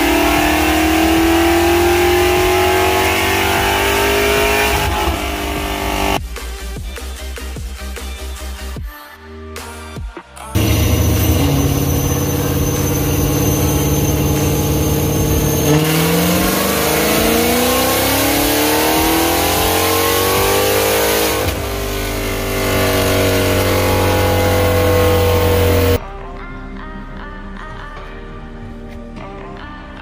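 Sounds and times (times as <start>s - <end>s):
car engine revving on dyno: 0.0s - 6.2s, 10.6s - 26.0s.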